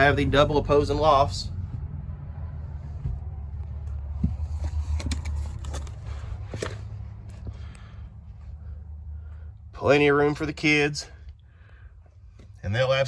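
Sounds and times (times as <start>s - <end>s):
steady low rumble: 0.0s - 13.0s
footsteps climbing steps: 2.8s - 5.2s.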